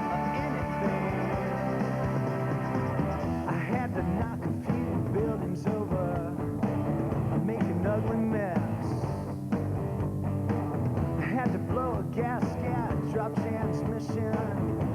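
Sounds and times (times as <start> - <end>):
person singing: 0.0 - 6.4
rock music: 0.0 - 14.9.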